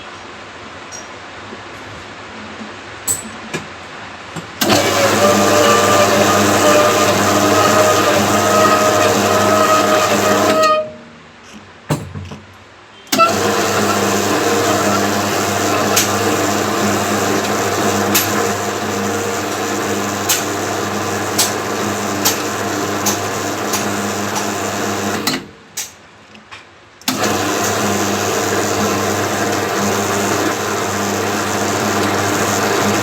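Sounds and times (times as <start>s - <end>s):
boring machine running: 4.6s - 11.0s, 13.1s - 25.5s, 27.1s - 33.0s.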